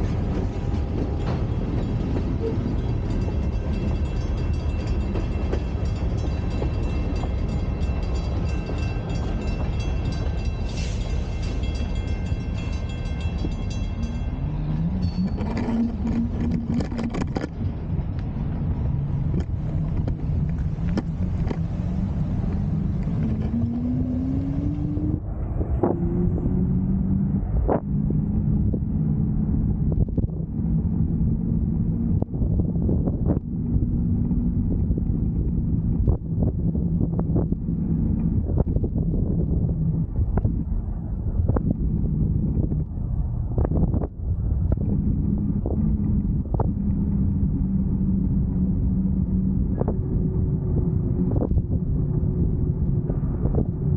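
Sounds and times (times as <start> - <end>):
train engine revving: 0.0 - 32.5
train rumbling: 0.0 - 53.9
high ringing crossing bell: 1.2 - 15.8.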